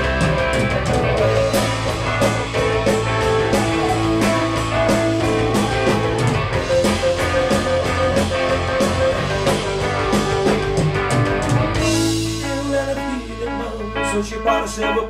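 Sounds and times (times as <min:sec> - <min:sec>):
steady drum beat: 0:00.0 - 0:13.9
guitar: 0:00.0 - 0:15.0
sustained bass notes: 0:00.0 - 0:15.0.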